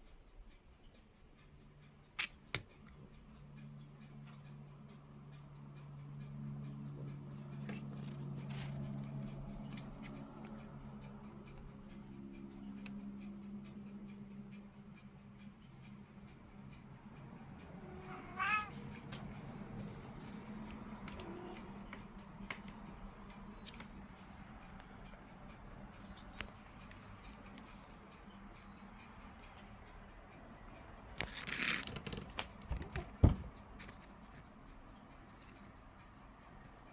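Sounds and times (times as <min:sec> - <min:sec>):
steady low hum: 0:02.7 - 0:31.2
cat meowing: 0:17.8 - 0:18.9.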